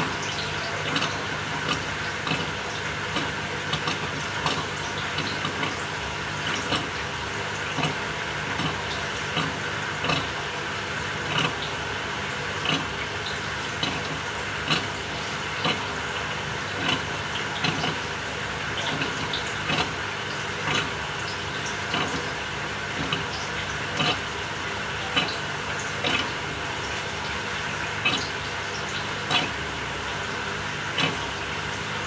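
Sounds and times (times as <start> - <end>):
washing machine motor hum: 0.0 - 32.0
water churning: 0.0 - 32.0.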